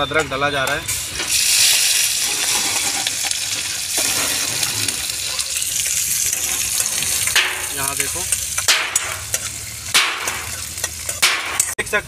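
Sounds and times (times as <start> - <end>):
vegetables sizzling in hot oil: 0.7 - 11.8.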